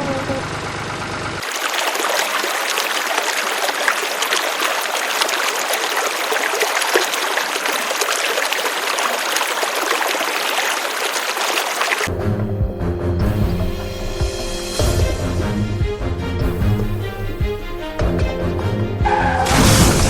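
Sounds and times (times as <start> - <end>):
water running and trickling: 1.4 - 12.1
music: 12.1 - 20.0.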